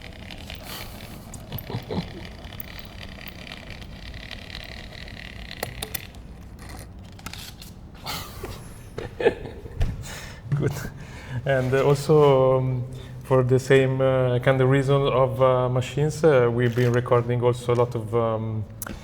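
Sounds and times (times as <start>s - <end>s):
small objects clicking: 0.0s - 6.8s.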